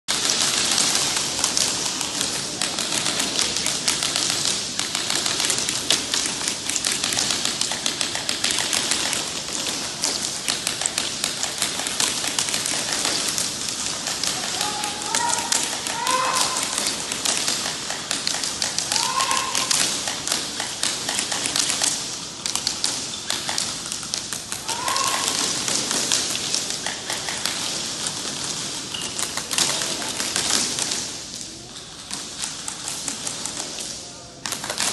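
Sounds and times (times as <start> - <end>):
people shouting: 13.8 - 17.7, 18.5 - 20.3, 24.5 - 26.0.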